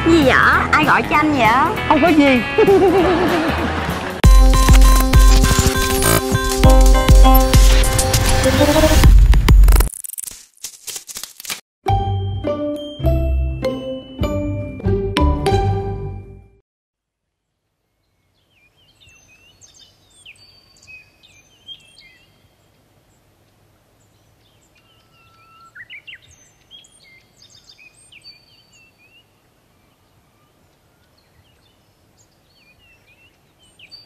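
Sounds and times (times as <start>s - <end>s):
faint outdoor hiss: 17.0s - 34.0s
small birds chirping: 18.0s - 34.0s.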